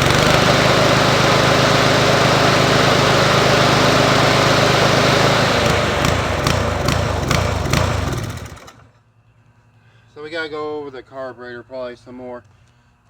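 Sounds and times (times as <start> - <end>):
lawn mower engine running: 0.0 - 9.0.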